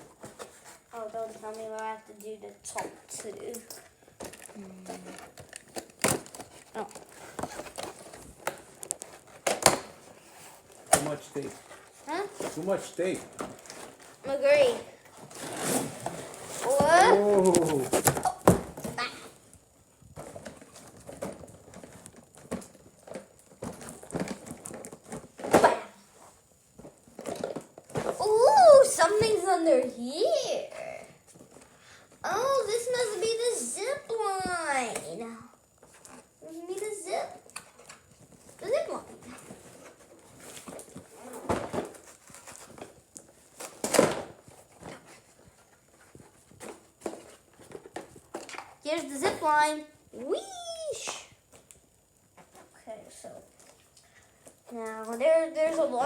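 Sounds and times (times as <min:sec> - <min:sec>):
packaging rustling and scraping: 0:00.0 - 0:19.4, 0:20.1 - 0:30.0, 0:35.7 - 0:49.6.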